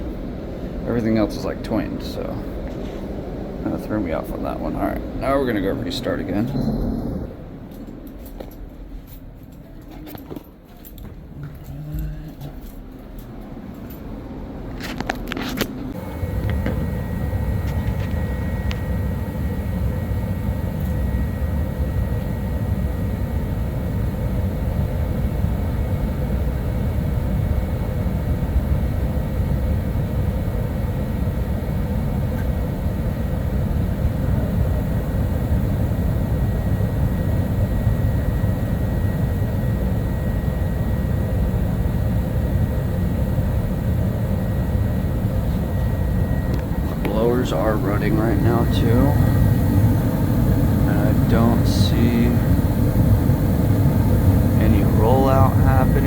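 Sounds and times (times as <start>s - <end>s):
furnace burner and blower rush: 0.0s - 10.6s, 11.2s - 56.0s
faint high steady tone: 44.6s - 56.0s.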